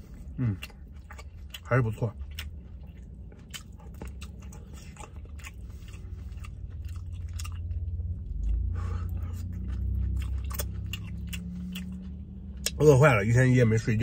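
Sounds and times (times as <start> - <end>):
person chewing noodles: 0.0 - 12.8
low steady hum: 0.0 - 14.0
wet mouth clicks and smacks: 10.3 - 12.8.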